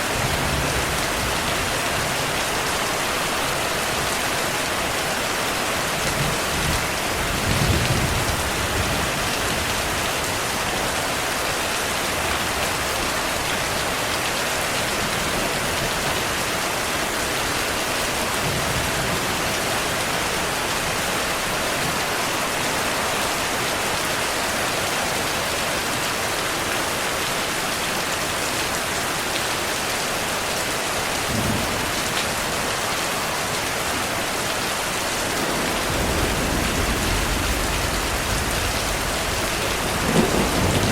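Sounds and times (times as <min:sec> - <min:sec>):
heavy rain: 0:00.0 - 0:40.9
thunder rumble: 0:35.3 - 0:40.9.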